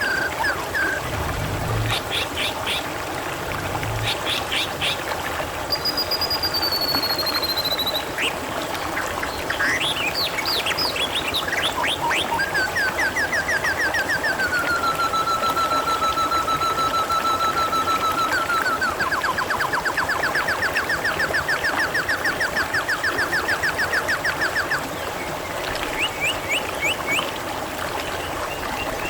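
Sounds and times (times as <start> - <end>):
songbirds whistling and chirping: 0.0 - 2.8, 5.7 - 8.4, 9.0 - 25.1, 25.7 - 27.3
trickling water: 0.0 - 29.0.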